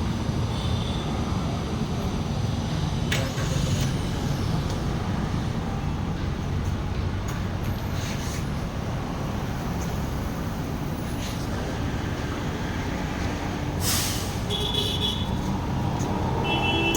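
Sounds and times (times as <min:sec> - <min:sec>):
vehicle engine rumble: 0:01.4 - 0:16.9
short hiss: 0:13.8 - 0:14.5.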